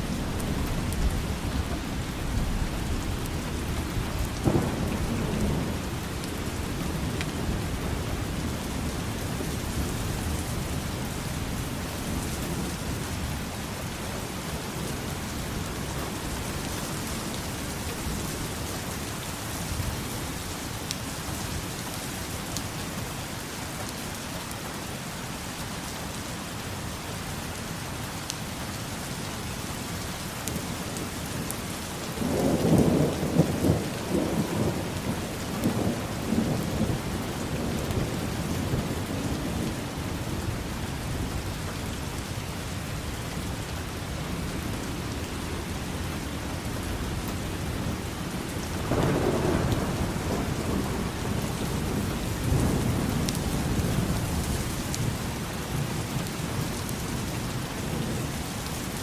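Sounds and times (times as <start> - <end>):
thunder rumbling: 0.0 - 12.7, 32.2 - 41.6, 44.6 - 55.9
steady rain falling: 0.0 - 59.0.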